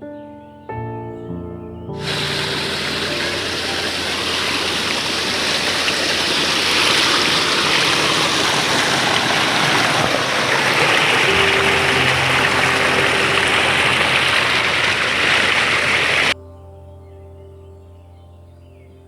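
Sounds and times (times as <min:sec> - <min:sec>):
music: 0:00.0 - 0:06.4, 0:10.6 - 0:15.4, 0:16.4 - 0:19.0
brook water rushing: 0:02.0 - 0:16.4.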